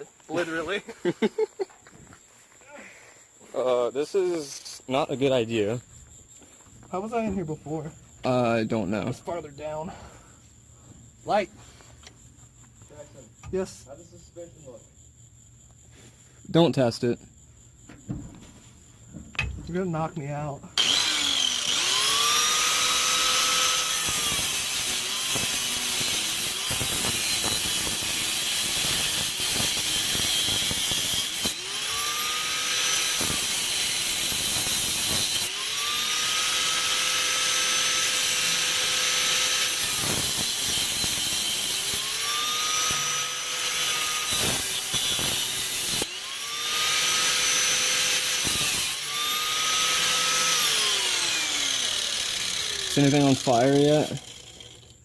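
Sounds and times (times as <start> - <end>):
angle grinder cutting steel pipe: 20.8 - 55.0.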